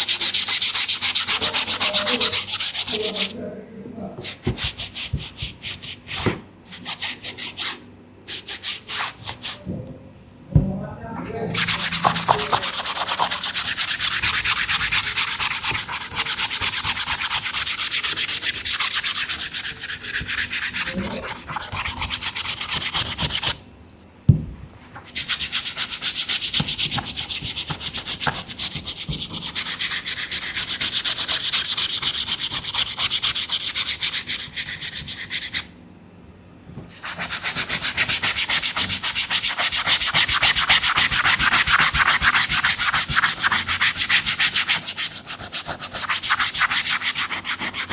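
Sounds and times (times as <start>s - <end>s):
brush scrubbing a sneaker: 0.0s - 3.4s, 11.5s - 23.6s, 25.1s - 35.7s, 36.9s - 47.9s.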